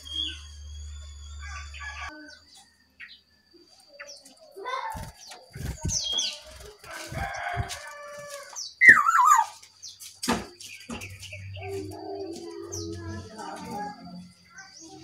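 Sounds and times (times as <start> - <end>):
short bird calls: 8.8 - 9.6
wavering bird call: 8.8 - 9.6.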